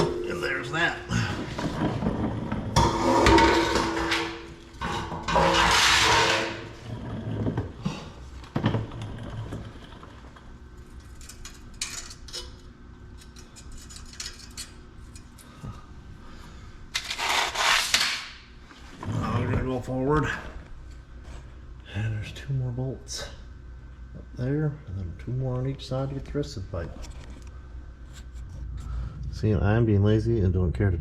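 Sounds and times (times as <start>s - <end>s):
metal exhaust pipe scraping: 0.0s - 8.1s.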